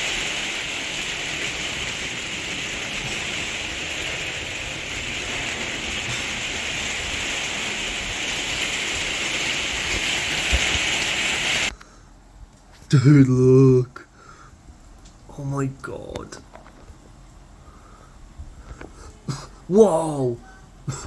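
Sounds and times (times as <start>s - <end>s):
torrential rain pouring: 0.0s - 11.8s, 12.9s - 21.0s.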